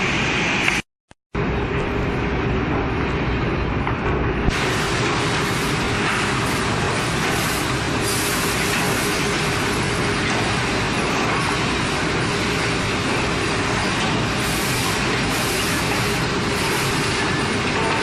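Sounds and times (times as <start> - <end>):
woodworking machinery running: 4.5 - 18.0.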